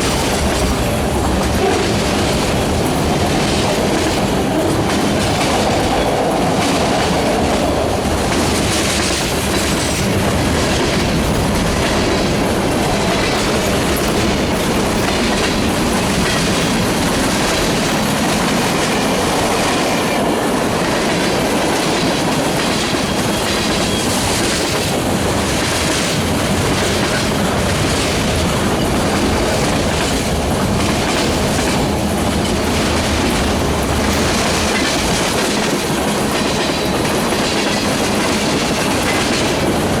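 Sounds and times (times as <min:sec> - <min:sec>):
train wheels clacking over rail joints: 0:00.0 - 0:40.0.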